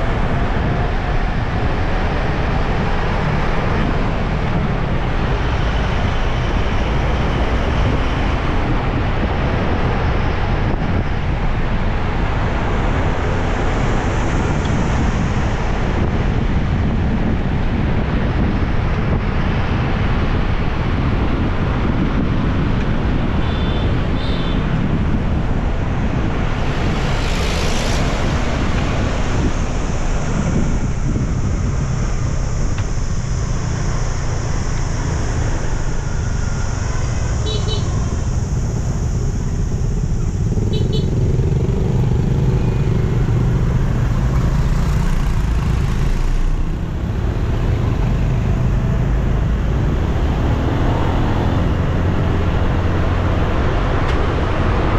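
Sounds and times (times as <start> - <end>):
road traffic: 0.0 - 54.9
wind buffeting microphone: 0.0 - 54.9
motorbike noise: 19.8 - 54.9.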